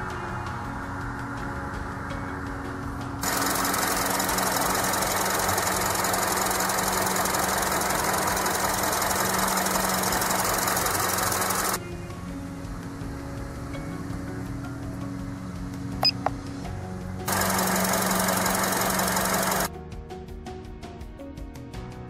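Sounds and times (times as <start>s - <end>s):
car engine idling: 3.2s - 11.8s, 17.3s - 19.7s.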